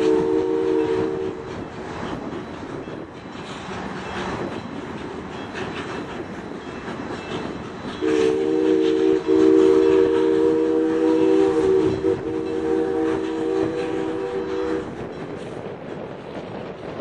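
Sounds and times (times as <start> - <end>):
steam locomotive chime whistle: 0.0 - 1.5, 7.3 - 15.2.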